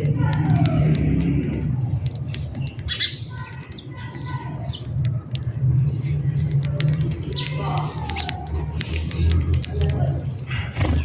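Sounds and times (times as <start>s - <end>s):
birds chirping and squawking: 0.0s - 11.0s.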